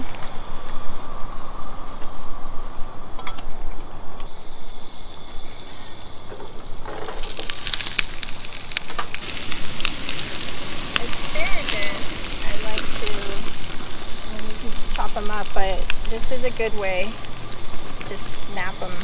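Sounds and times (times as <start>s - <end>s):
butter and oil sizzling in a pan: 4.4s - 19.0s.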